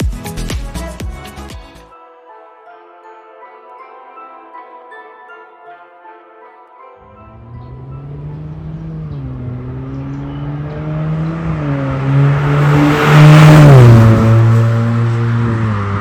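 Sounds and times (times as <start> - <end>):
car exhaust note: 7.2 - 16.0.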